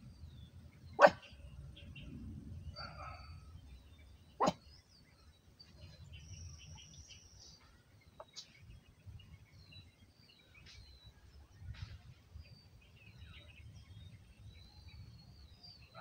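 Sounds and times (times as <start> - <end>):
small birds chirping: 0.0 - 16.0
low rumble: 1.5 - 4.3.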